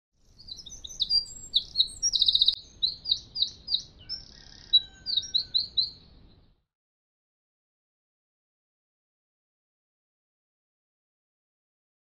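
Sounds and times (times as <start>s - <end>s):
songbird singing: 0.2s - 6.6s.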